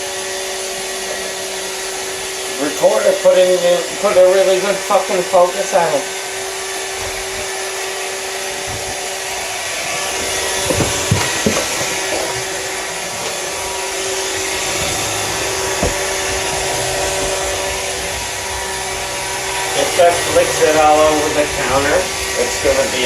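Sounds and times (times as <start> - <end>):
robot vacuum whirring: 0.0 - 23.0
short knocks: 14.3 - 17.7.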